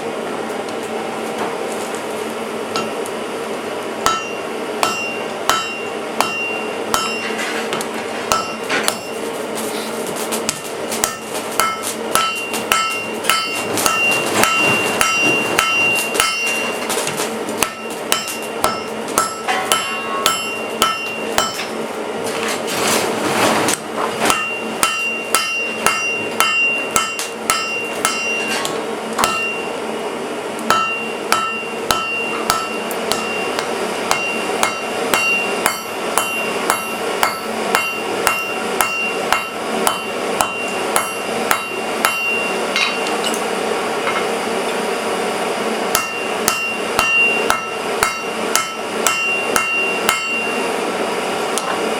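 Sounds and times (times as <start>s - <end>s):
hammer forging steel on anvil: 2.7s - 3.3s, 3.9s - 22.0s, 23.8s - 29.8s, 30.6s - 44.9s, 45.8s - 50.8s
anvil ringing: 4.0s - 7.4s, 8.3s - 9.2s, 11.0s - 16.8s, 17.6s - 21.8s, 24.3s - 28.6s, 29.2s - 29.7s, 30.7s - 43.4s, 45.9s - 50.6s.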